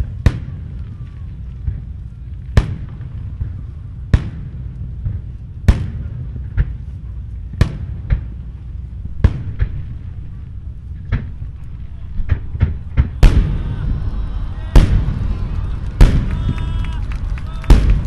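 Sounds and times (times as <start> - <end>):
small firework pops: 0.0 - 8.5, 9.2 - 18.0
low rumble: 8.5 - 18.0
firework shells bursting: 11.0 - 18.0.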